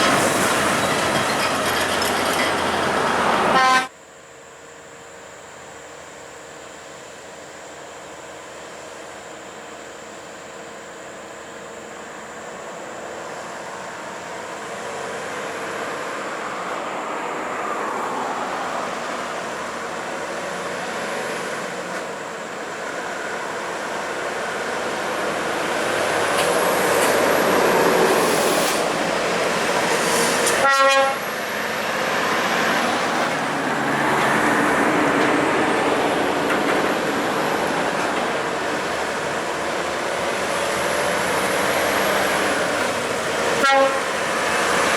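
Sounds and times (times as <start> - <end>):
heavy trucks passing: 0.0 - 3.9, 12.4 - 44.9
truck horn blast: 3.4 - 3.9, 30.5 - 31.3, 43.6 - 44.3.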